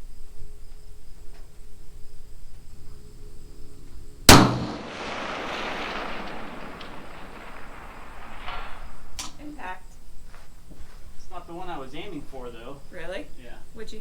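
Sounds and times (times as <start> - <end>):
rifle shot: 4.3 - 9.5
rolling echo: 4.3 - 10.0.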